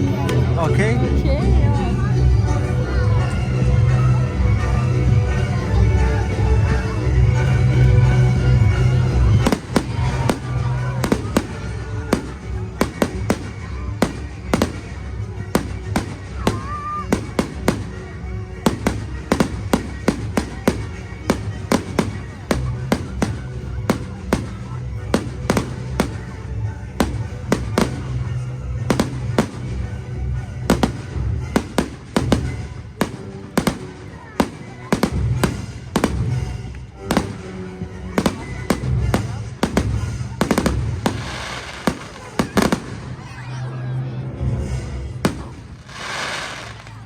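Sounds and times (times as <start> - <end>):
music playing: 0.0 - 47.0
firework bangs: 9.2 - 43.4, 45.2 - 47.0.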